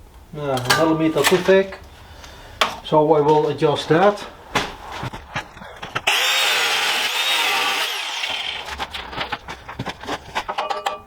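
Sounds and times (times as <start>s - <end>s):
angle grinder whining: 6.0s - 8.7s.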